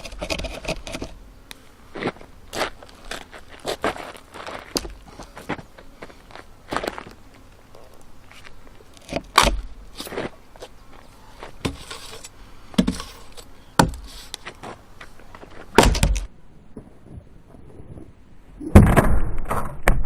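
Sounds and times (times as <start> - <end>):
axe chopping wood: 9.1 - 9.6, 13.8 - 14.0, 15.7 - 16.3.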